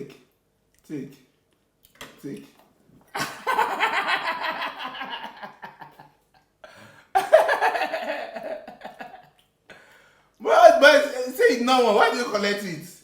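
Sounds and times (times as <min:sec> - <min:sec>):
person laughing: 0:03.2 - 0:06.2, 0:07.2 - 0:09.3.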